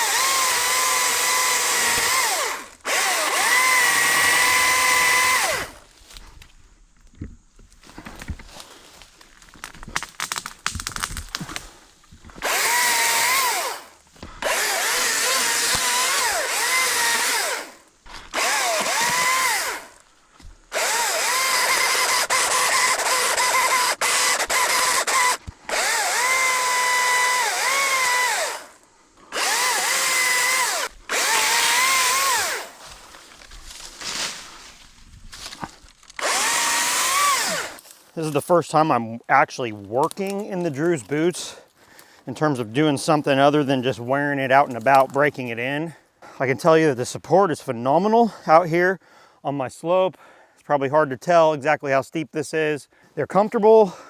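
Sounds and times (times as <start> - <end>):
electric chainsaw running: 0.0 - 5.8, 12.3 - 20.0, 20.6 - 32.8, 36.2 - 37.9
rustling: 32.3 - 36.4.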